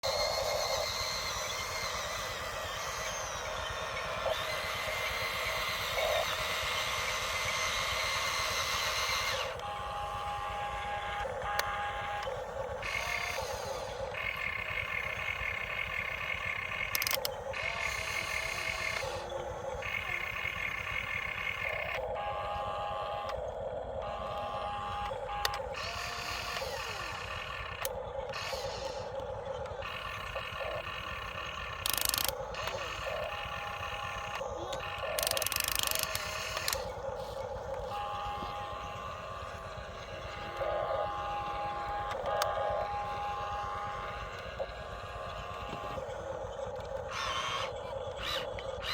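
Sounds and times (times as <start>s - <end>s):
low engine rumble: 0.0s - 48.9s.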